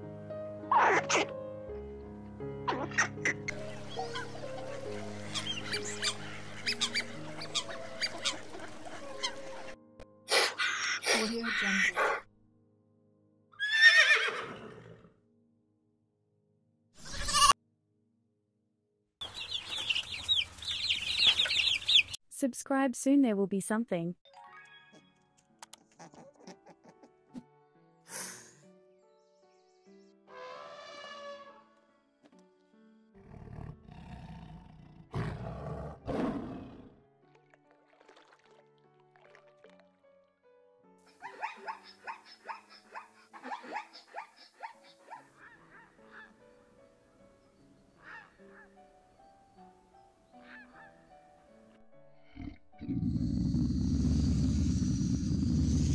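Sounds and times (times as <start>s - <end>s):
light background music: 0.0s - 15.2s, 22.3s - 33.5s, 35.1s - 54.1s
wavering animal call: 5.1s - 9.8s
chicks peeping: 19.2s - 22.2s
large animal deep rough calls: 52.2s - 55.9s.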